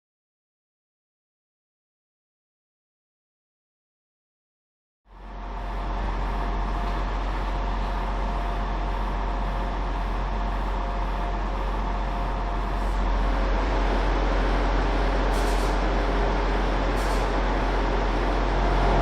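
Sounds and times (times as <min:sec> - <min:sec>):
diesel train engine idling: 0:05.1 - 0:19.0.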